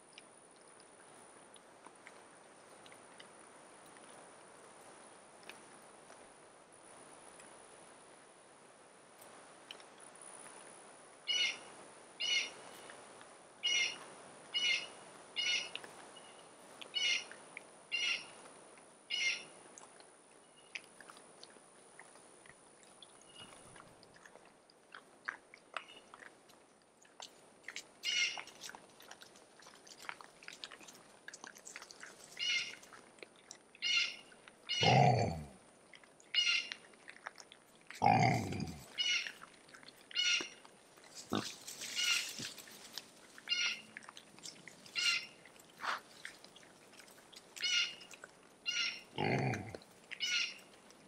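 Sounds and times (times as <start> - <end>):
hogs chewing corn: 0.0 - 6.5, 15.0 - 51.0
bird calling: 33.8 - 35.1, 43.4 - 43.8, 45.0 - 46.0, 47.6 - 49.3, 50.2 - 50.7.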